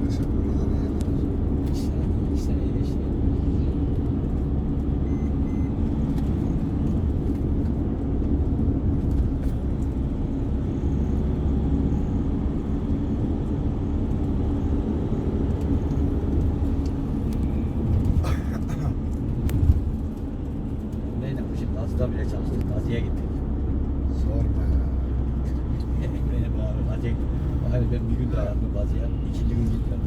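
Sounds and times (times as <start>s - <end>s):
bus engine and road rumble: 0.0s - 30.0s.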